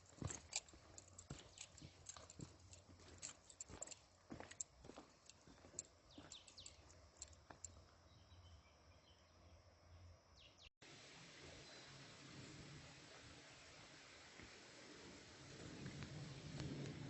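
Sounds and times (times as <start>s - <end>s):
small birds chirping: 0.0s - 9.7s
faint hiss: 10.8s - 17.0s.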